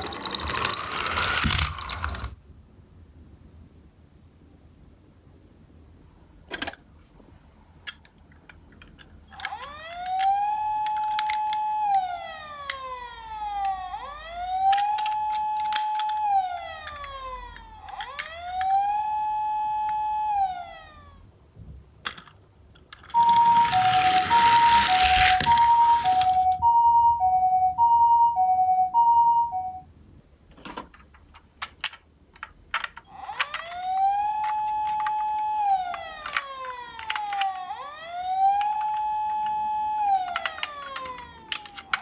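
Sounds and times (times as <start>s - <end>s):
toy siren wailing: 9.4s - 21.2s, 23.2s - 29.8s, 33.1s - 42.0s
two-tone hi-lo siren: 9.5s - 21.2s, 23.2s - 29.8s, 33.2s - 42.0s.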